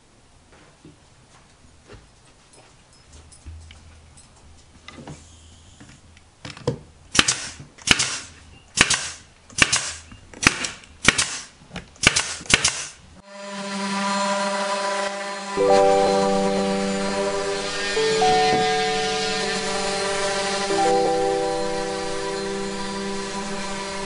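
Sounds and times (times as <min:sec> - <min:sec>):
nail gun firing: 0:07.1 - 0:13.0
music: 0:15.5 - 0:24.0.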